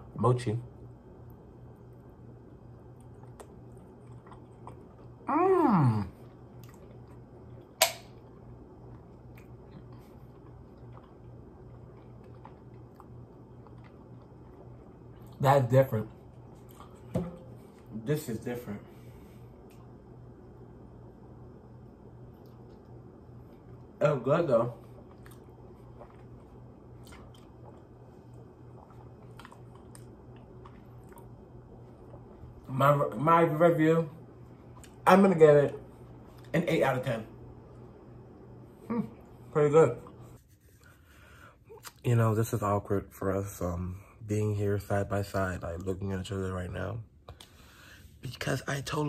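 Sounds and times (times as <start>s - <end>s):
person chewing: 1.3s - 15.4s, 16.0s - 17.9s, 24.8s - 32.7s.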